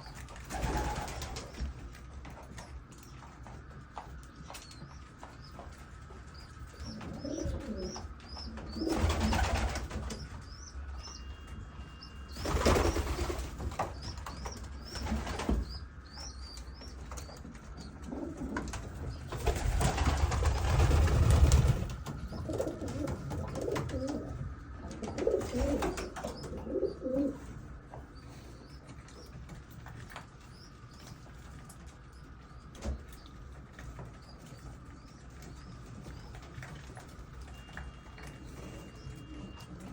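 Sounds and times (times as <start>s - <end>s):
small birds chirping: 2.4s - 24.4s, 25.0s - 39.7s
pigeons cooing: 6.7s - 10.3s, 17.8s - 29.3s.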